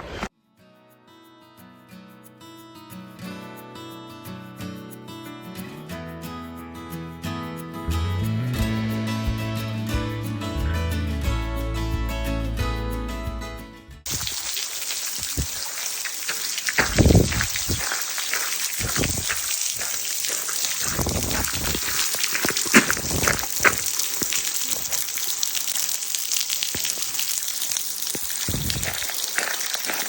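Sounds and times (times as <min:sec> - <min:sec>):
steady rain hiss: 0:14.1 - 0:30.0.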